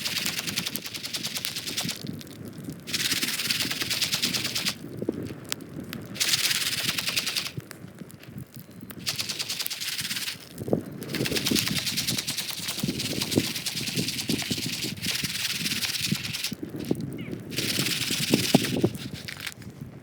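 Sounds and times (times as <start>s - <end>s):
popcorn popping: 0.0s - 4.9s, 8.9s - 19.6s.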